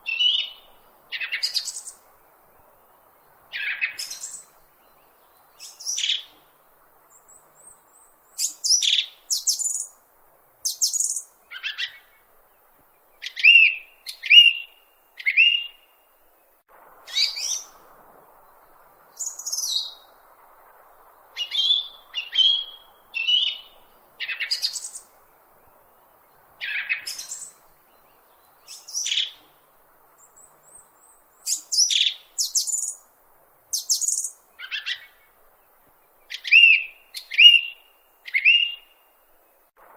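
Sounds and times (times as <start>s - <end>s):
small bird chirping: 0.0s - 2.0s, 3.5s - 6.5s, 7.1s - 10.0s, 10.6s - 12.2s, 13.2s - 15.9s, 17.1s - 17.8s, 18.5s - 20.3s, 21.1s - 25.9s, 26.6s - 29.6s, 30.2s - 33.1s, 33.7s - 35.3s, 36.1s - 39.0s.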